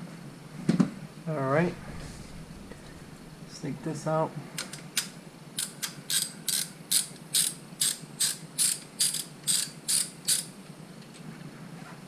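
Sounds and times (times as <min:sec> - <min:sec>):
socket ratchet clicking: 0:04.6 - 0:10.5.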